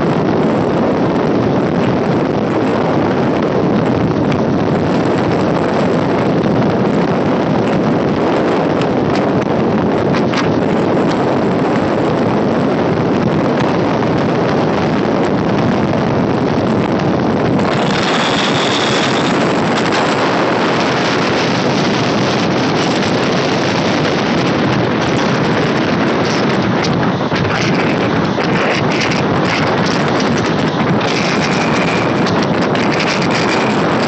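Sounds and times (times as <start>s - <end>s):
train running at speed: 0.0s - 34.0s
wind on microphone: 0.0s - 34.0s
brief high whine: 17.6s - 19.9s.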